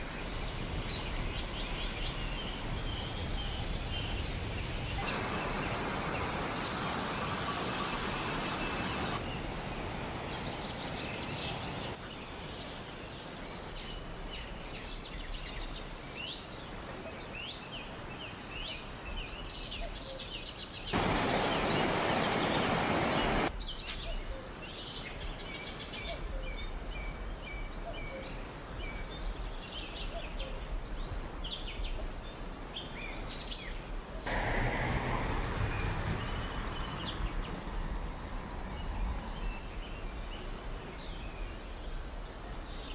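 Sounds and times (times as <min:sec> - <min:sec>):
small birds chirping and singing: 0:00.5 - 0:13.3, 0:17.2 - 0:42.9
steady rushing noise: 0:05.0 - 0:12.0, 0:21.0 - 0:23.5.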